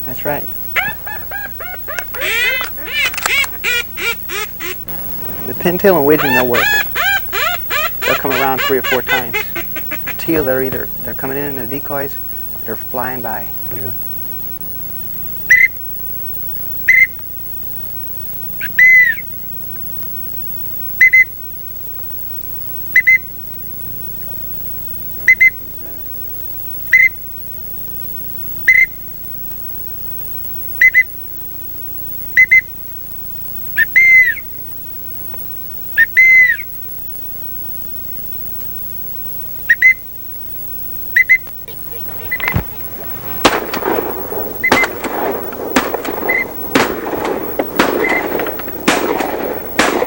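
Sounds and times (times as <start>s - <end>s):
duck-calling whistles: 0.0s - 12.7s, 15.5s - 17.2s, 18.3s - 19.3s, 20.9s - 21.4s, 22.6s - 23.4s, 25.2s - 25.7s, 26.8s - 27.3s, 28.6s - 29.0s, 30.8s - 31.2s, 32.3s - 32.8s, 33.7s - 34.6s, 35.9s - 36.8s, 39.6s - 40.1s, 41.1s - 50.0s.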